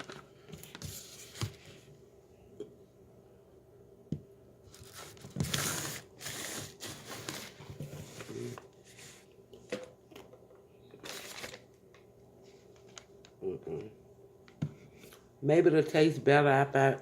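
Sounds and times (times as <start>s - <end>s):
packaging crinkling and rustling: 4.7s - 8.7s, 11.0s - 11.7s.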